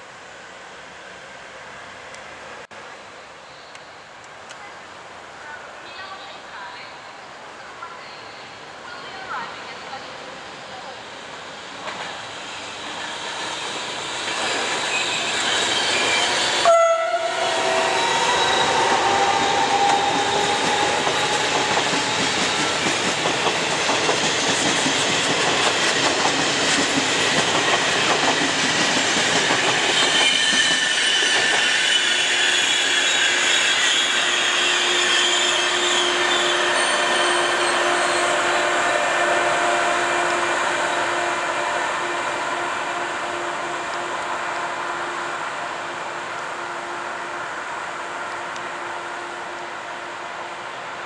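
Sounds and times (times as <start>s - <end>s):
train running past: 0.0s - 51.0s
high thin wheel squeal: 12.3s - 22.8s, 29.5s - 39.3s
train horn note: 16.6s - 21.8s, 34.5s - 50.1s.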